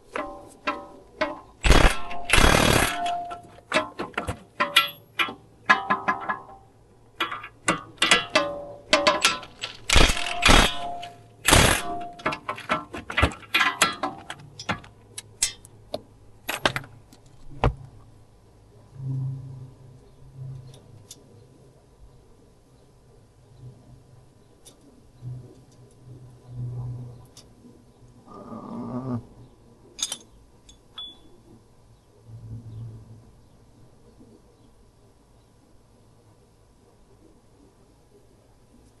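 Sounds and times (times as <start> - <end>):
metal tools clinking on steel: 0.1 - 15.7, 30.0 - 31.3.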